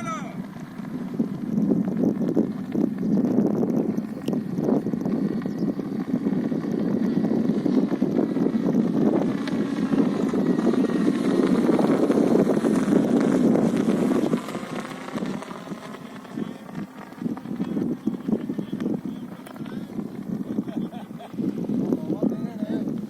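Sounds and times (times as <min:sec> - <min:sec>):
light aircraft passing by: 0:00.0 - 0:23.0
wind on microphone: 0:00.0 - 0:23.0.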